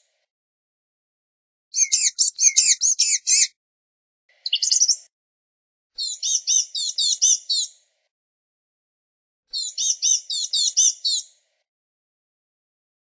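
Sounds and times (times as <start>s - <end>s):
bird singing high thin notes: 4.4s - 5.1s.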